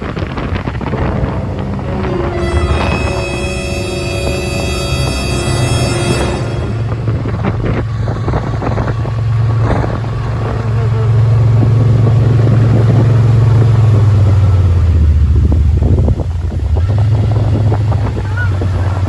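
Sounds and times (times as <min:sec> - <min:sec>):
utility vehicle engine humming: 0:00.0 - 0:14.1.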